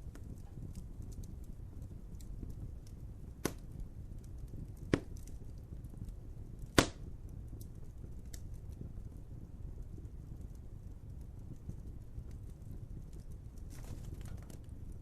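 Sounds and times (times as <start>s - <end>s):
low steady rumble: 0.0s - 15.0s
wood fire crackling: 0.0s - 15.0s
sharp pops: 3.4s - 3.7s, 6.7s - 7.1s.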